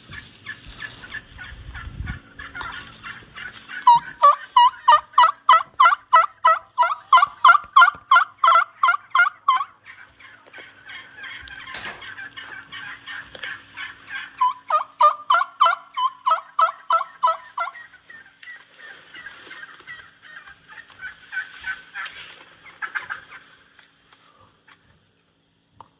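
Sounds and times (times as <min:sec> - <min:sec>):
turkey calling: 0:00.0 - 0:24.9.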